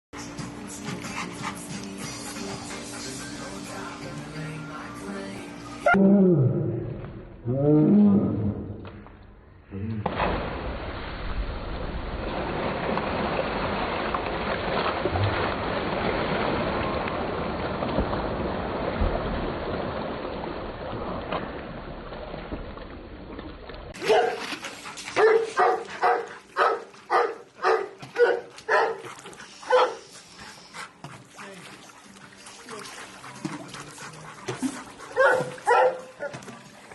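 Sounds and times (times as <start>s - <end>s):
pool water splashing: 0.2s - 6.0s, 10.0s - 36.9s
dog barking: 24.0s - 24.5s, 25.2s - 29.1s, 29.7s - 30.0s, 35.1s - 36.4s.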